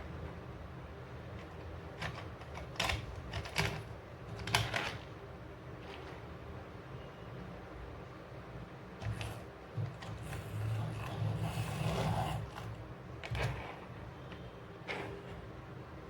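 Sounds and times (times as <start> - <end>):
toy cars clicking and rubbing: 9.0 - 15.5.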